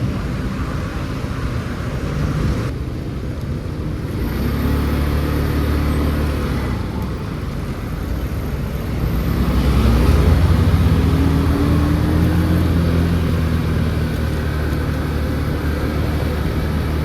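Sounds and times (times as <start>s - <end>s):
motor scooter engine hum: 3.9s - 17.0s.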